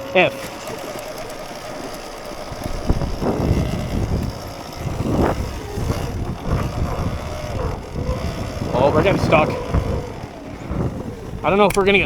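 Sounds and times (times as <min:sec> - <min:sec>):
electric motor whine: 0:00.0 - 0:12.0
tyre churning in snow: 0:00.0 - 0:12.0.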